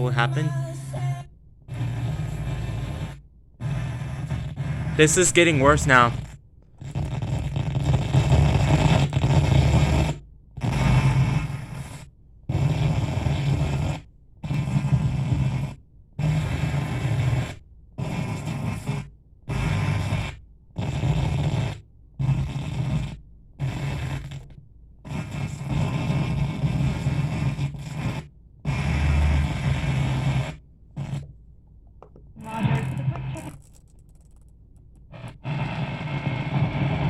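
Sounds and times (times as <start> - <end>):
radio broadcast buzzy garble: 5.0 - 6.2, 32.4 - 33.6.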